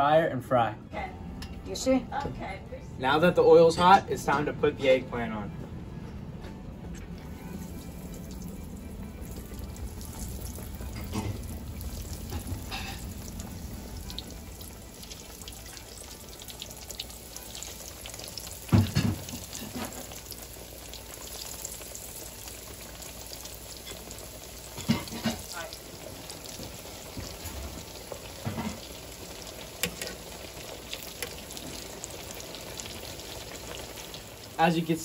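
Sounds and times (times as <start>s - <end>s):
food sizzling in hot oil: 7.4s - 35.0s.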